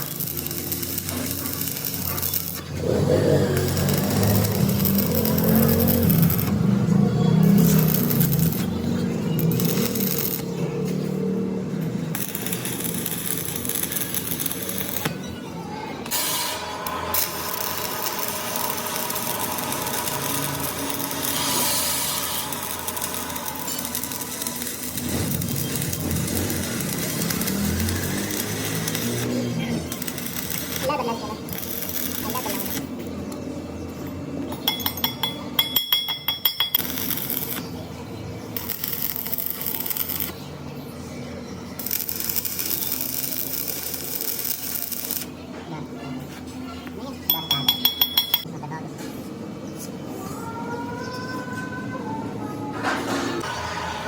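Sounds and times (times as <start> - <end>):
machine running steadily: 16.0 - 33.2
loud hiss: 16.1 - 29.2.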